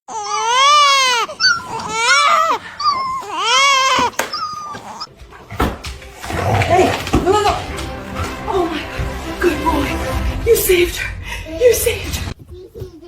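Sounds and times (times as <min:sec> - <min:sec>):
dog whining: 0:00.1 - 0:05.1.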